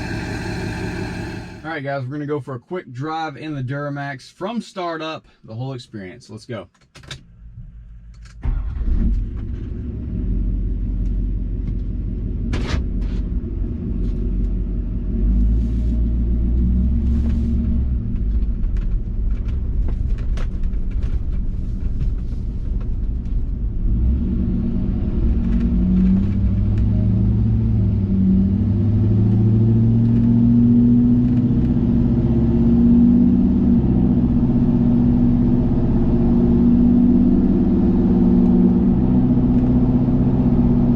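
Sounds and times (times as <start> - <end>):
diesel engine cranking: 0.0 - 1.7
truck engine idling loud: 0.0 - 1.7.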